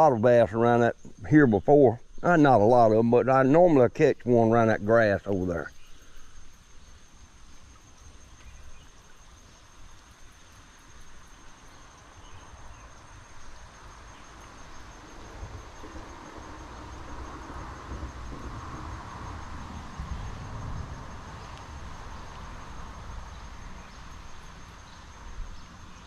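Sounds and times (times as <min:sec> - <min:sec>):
insects trilling: 0:00.0 - 0:26.0
outdoor background noise: 0:00.0 - 0:26.0.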